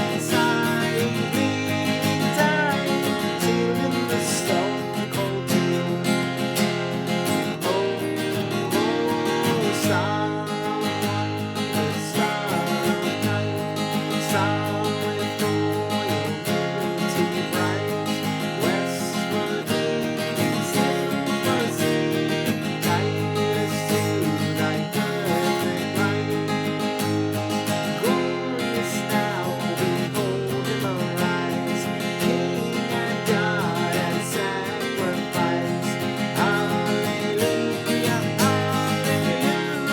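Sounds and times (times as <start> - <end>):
acoustic guitar strummed and picked: 0.0 - 39.9.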